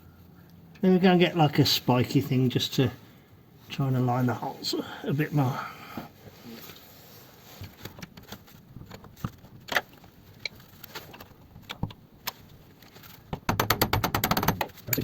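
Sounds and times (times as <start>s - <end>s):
rapid rattling clicks: 13.4s - 15.0s.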